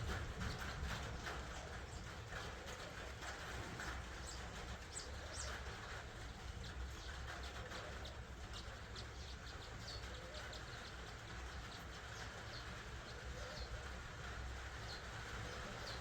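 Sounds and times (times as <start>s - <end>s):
steady low rumble: 0.0s - 2.3s
small birds chirping: 0.0s - 16.0s.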